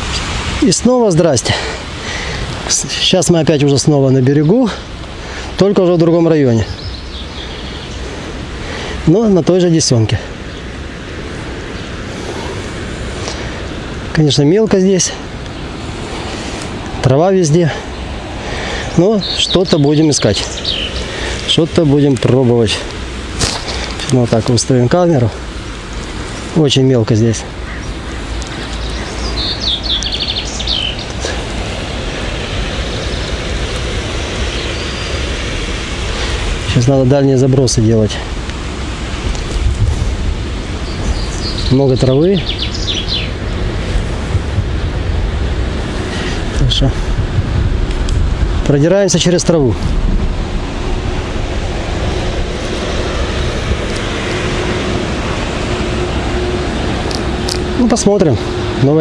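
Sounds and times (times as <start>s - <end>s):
wind buffeting microphone: 0.0s - 59.0s
small bird chirping: 6.7s - 8.0s, 19.2s - 21.2s, 27.7s - 31.3s, 40.8s - 43.4s
low rumble: 43.3s - 59.0s.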